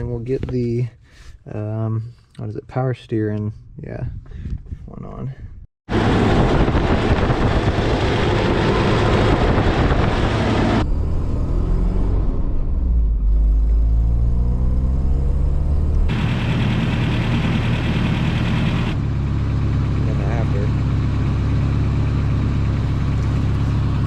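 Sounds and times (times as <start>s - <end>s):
car engine running: 5.9s - 10.8s, 15.0s - 24.0s.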